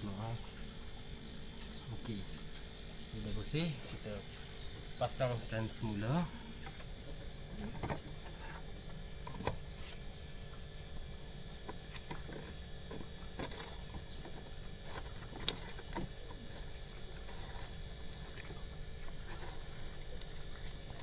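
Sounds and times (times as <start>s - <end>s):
light plastic scraping: 7.6s - 10.1s, 11.6s - 21.0s.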